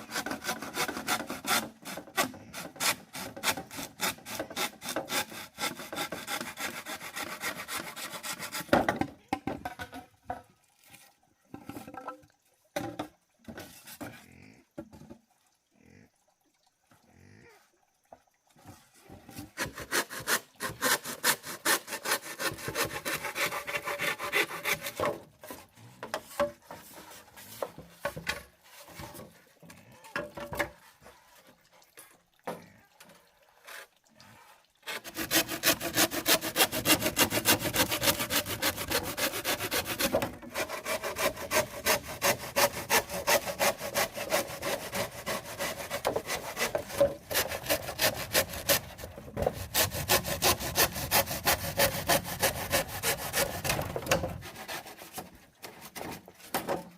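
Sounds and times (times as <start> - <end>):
hand saw cutting wood: 0.0 - 9.1, 19.3 - 29.4, 34.8 - 56.9.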